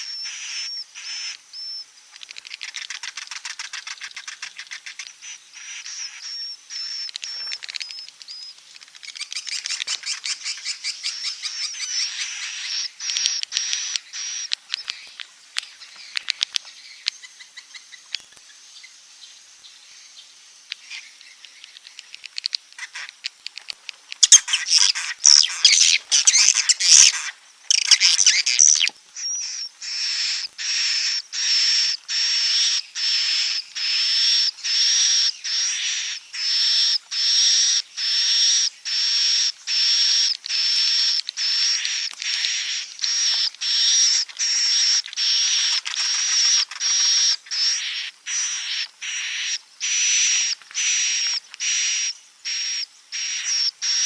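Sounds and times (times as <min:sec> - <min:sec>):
high buzzy chirps: 0:00.0 - 0:18.9, 0:20.0 - 0:54.0
faint ticks: 0:02.1 - 0:05.2, 0:07.0 - 0:10.3, 0:13.0 - 0:18.6, 0:20.6 - 0:24.4
swiftlets twittering: 0:24.2 - 0:37.4.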